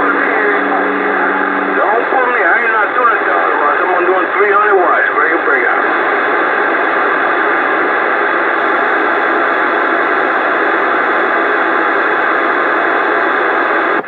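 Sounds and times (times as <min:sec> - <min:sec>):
voice over radio: 0:00.0 - 0:06.5
radio static hiss: 0:00.0 - 0:14.0.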